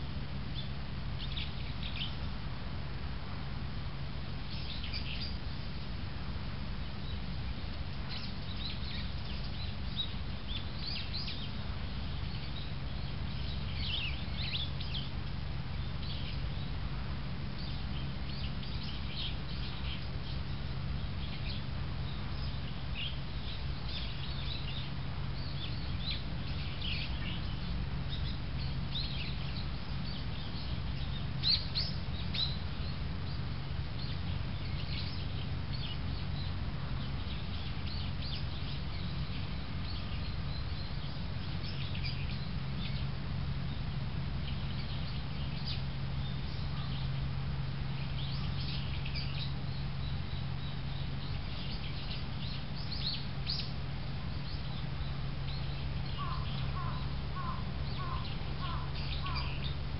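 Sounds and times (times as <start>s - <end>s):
small birds chirping: 0.0s - 59.9s
steady low hum: 0.0s - 59.9s.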